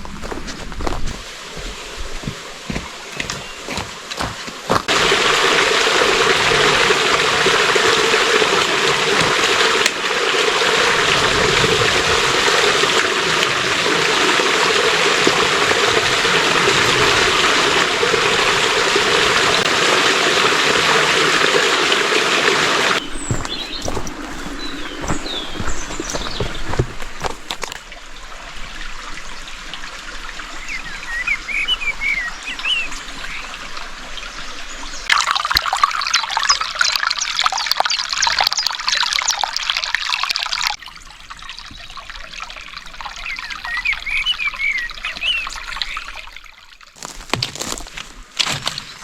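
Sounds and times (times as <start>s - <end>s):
footsteps on a trail: 0.0s - 5.1s, 23.0s - 27.9s, 47.0s - 49.0s
stream rushing water: 0.0s - 49.0s.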